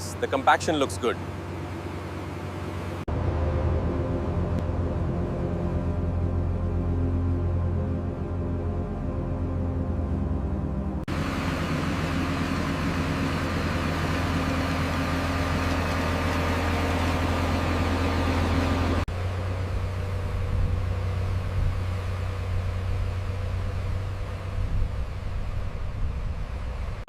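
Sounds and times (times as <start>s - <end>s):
diesel engine droning: 0.0s - 27.0s
hissy machine noise: 11.1s - 20.2s.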